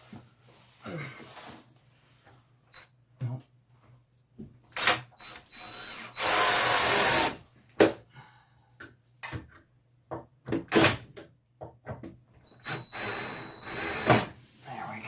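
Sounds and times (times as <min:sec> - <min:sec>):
power drill driving screw into wood: 0:04.8 - 0:07.4, 0:12.5 - 0:14.4.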